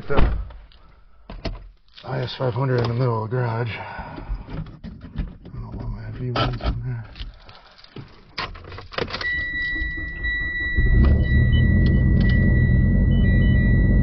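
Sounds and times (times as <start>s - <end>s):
car engine starting and idling: 9.1s - 14.0s
steady electronic chime: 9.4s - 14.0s.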